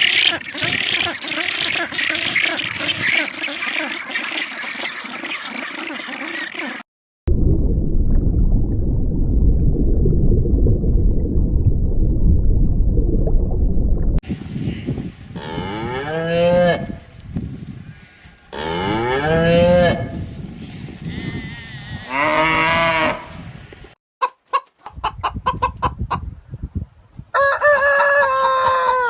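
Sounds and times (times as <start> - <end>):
low rumbling noise: 7.3 - 14.6
cattle mooing: 21.2 - 23.3.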